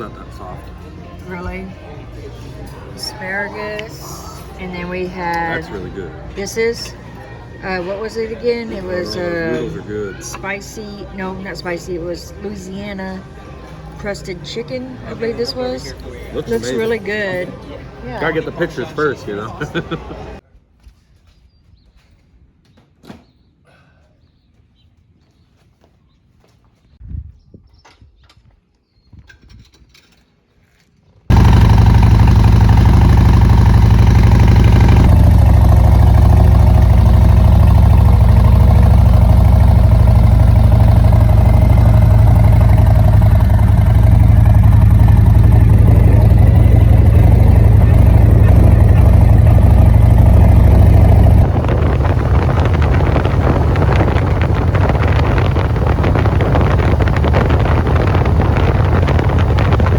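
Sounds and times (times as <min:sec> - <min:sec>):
motorcycle engine running: 0:31.3 - 0:59.9
wind buffeting microphone: 0:44.8 - 0:59.9.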